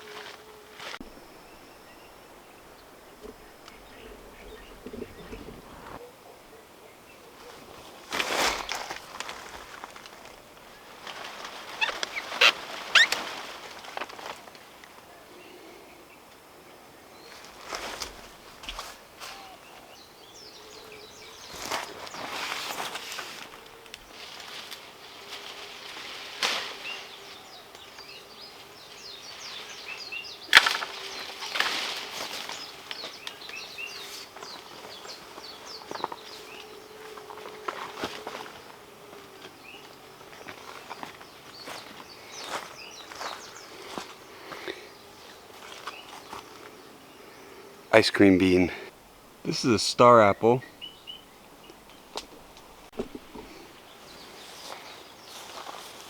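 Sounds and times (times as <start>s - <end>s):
footsteps through vegetation: 0.0s - 6.1s, 7.4s - 14.8s, 17.2s - 19.6s, 21.1s - 47.0s, 51.7s - 56.0s
faint steady hum: 0.4s - 7.8s
small birds chirping: 0.8s - 56.0s
bird chirping: 1.0s - 7.4s, 11.8s - 13.2s, 49.5s - 55.7s.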